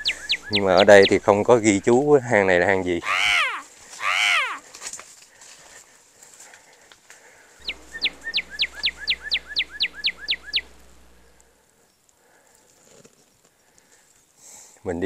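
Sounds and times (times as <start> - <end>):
bird calling in sharp notes: 0.0 - 2.0, 3.0 - 4.6, 7.6 - 10.9.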